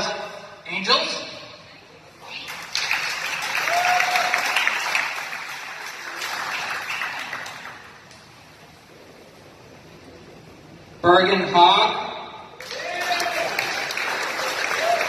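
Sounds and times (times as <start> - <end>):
crowd applauding and cheering: 2.5 - 8.1, 12.6 - 15.0
short whoop: 3.6 - 4.4.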